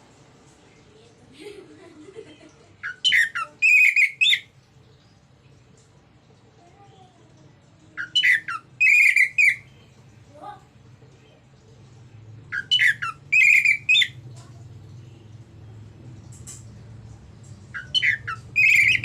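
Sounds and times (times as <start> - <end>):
thrush singing whistled notes: 8.2 - 9.7, 12.5 - 14.2, 17.8 - 19.0.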